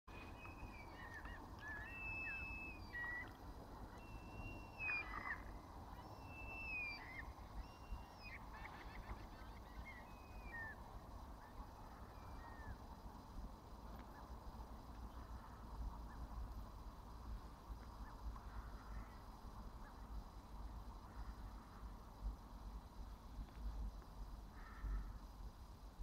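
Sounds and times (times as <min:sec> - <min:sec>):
birds calling: 0:00.1 - 0:10.8.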